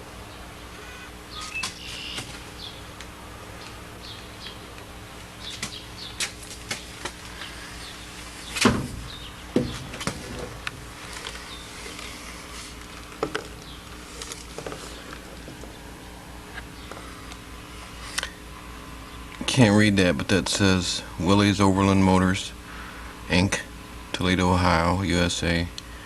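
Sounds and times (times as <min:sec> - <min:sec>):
steady low hum: 0:00.0 - 0:26.0
loud knocks: 0:08.6 - 0:10.6.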